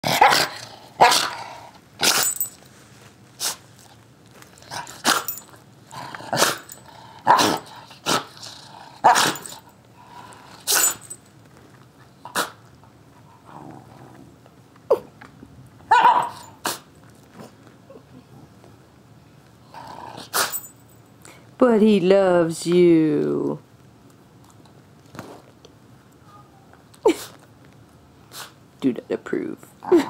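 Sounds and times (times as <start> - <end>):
dog sneezing: 2.0 - 2.4, 3.4 - 3.7, 5.0 - 5.3, 6.4 - 6.7, 7.3 - 8.4, 9.1 - 9.5, 10.7 - 11.0, 12.3 - 12.6, 15.9 - 16.9, 20.2 - 20.6, 27.0 - 27.4, 28.3 - 28.6.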